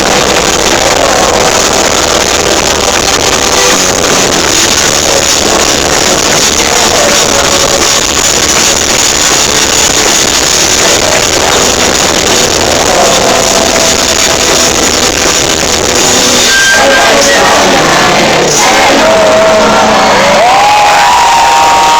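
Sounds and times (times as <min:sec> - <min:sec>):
audience shouting along: 0:16.8 - 0:21.9.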